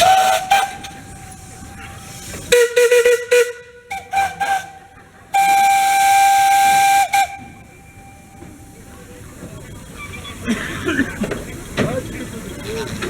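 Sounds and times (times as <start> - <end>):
steam locomotive whistle: 0.0 - 9.0.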